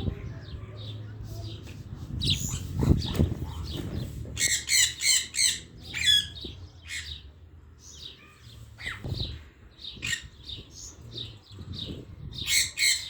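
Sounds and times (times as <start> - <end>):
parrots squawking and chirping: 2.2 - 7.3, 8.0 - 13.0.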